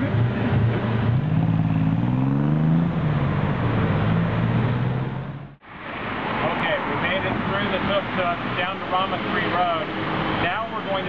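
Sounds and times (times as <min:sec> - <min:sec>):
auto rickshaw engine revving: 0:00.0 - 0:05.6
road and wind noise: 0:00.0 - 0:11.0.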